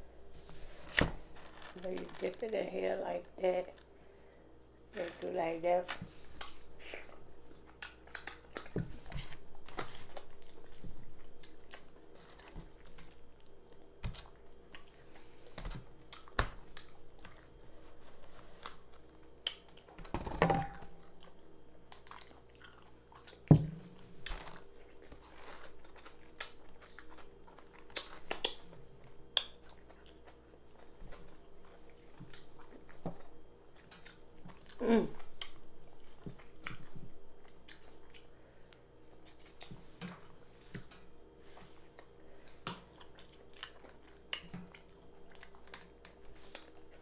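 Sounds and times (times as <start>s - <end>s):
person chewing: 6.2s - 20.1s, 20.9s - 38.4s, 41.6s - 47.0s.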